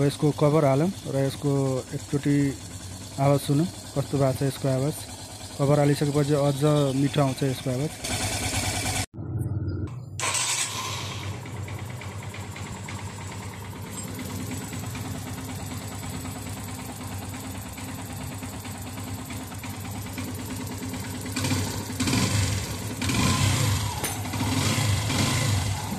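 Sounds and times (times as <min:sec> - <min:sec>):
motorcycle engine idling and revving: 0:00.0 - 0:25.9.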